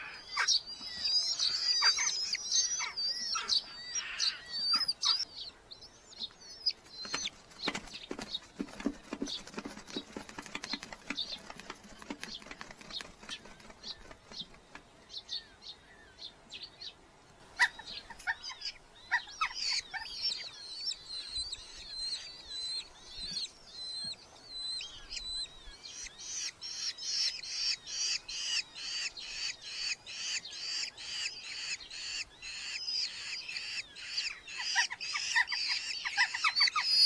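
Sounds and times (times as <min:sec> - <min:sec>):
falcon chicks calling: 0:00.0 - 0:14.6, 0:17.6 - 0:37.0
wing flapping: 0:06.7 - 0:14.9.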